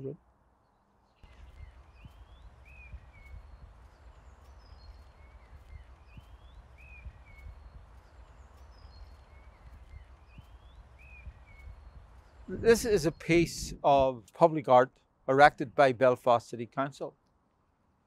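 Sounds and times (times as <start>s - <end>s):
songbird whistling: 1.5s - 13.4s
steady low rumble: 5.2s - 14.2s.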